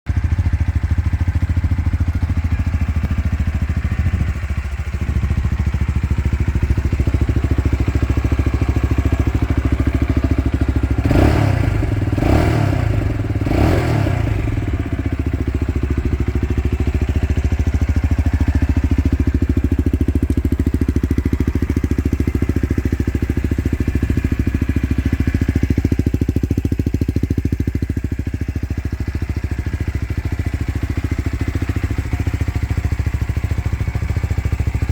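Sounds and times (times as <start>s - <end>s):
motorcycle engine idling: 0.1s - 34.9s
engine revving: 10.9s - 15.5s.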